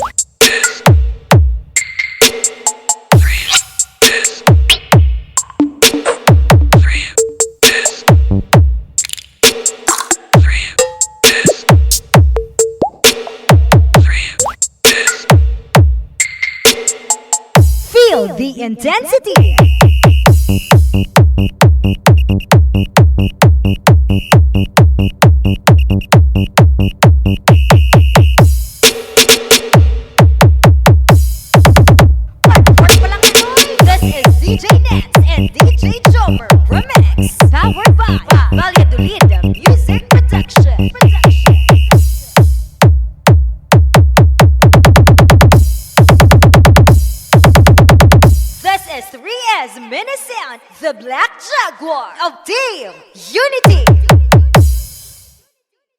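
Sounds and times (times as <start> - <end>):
electronic dance music: 0.0 - 8.7, 9.4 - 42.9, 44.0 - 49.3, 53.3 - 55.4
booming kick drum: 0.8 - 1.7, 3.1 - 3.4, 4.4 - 5.3, 6.3 - 7.0, 8.1 - 8.9, 11.7 - 12.5, 13.5 - 14.2, 15.3 - 16.1, 17.6 - 18.0, 19.4 - 28.8, 29.7 - 48.6, 53.7 - 54.9.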